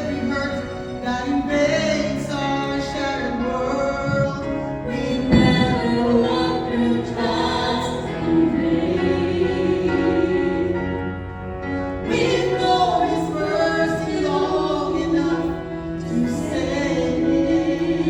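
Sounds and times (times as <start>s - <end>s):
choir singing held notes: 0.0s - 18.0s
low thump: 5.2s - 6.1s.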